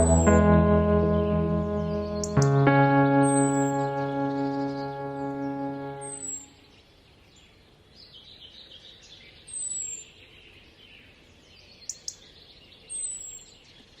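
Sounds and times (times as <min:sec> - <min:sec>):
high whistle sliding downward: 0:00.0 - 0:01.6
birds chirping: 0:00.0 - 0:06.5.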